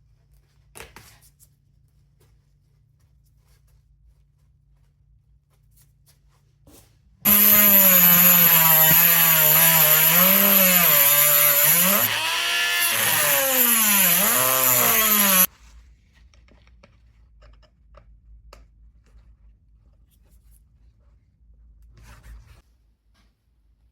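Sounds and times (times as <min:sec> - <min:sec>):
small electric power tool running: 0:07.3 - 0:15.5.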